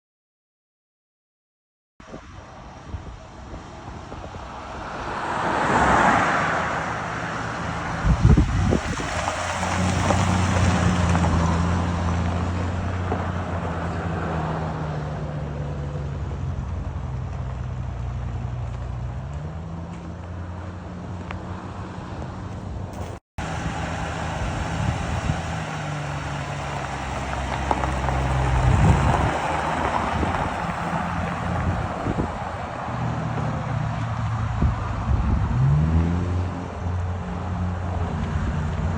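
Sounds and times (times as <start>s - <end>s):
wind and road noise: 2.0s - 38.9s
car engine running: 22.9s - 32.7s.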